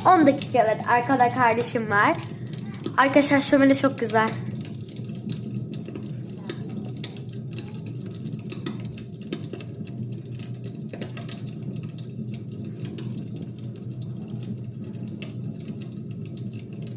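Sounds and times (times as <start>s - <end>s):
fire crackling and popping: 0.0s - 16.9s
low fire rumble: 0.0s - 16.9s.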